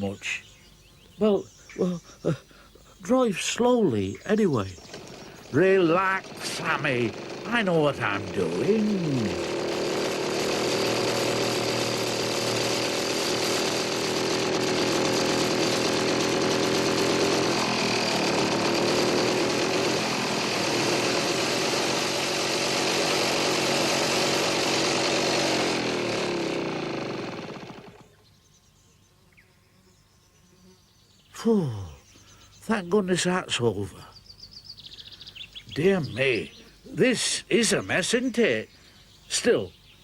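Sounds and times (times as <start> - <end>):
old car engine running: 4.5 - 28.1.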